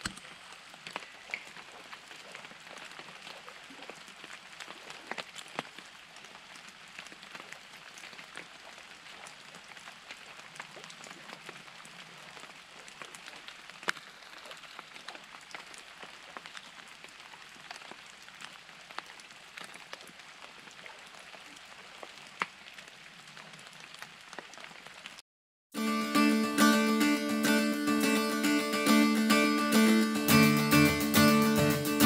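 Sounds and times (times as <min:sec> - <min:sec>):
rain falling on a surface: 0:00.0 - 0:25.2.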